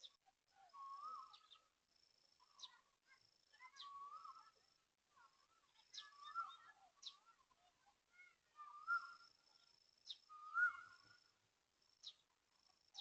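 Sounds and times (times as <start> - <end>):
bird warbling call: 10.1 - 11.2
high bird whistles: 10.1 - 11.2.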